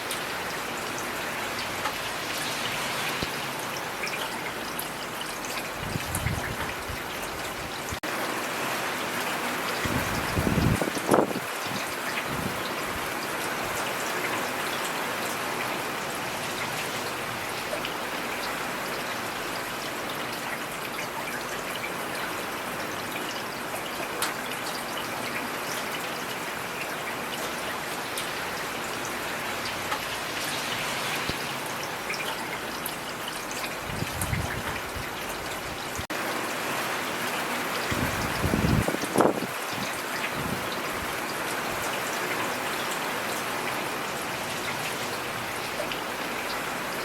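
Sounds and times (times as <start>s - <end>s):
steady rain hiss: 0.0s - 47.0s.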